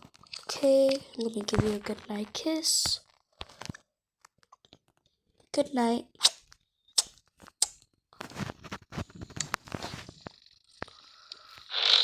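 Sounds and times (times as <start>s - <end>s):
rustling and crinkling: 0.0s - 5.4s, 8.2s - 11.7s.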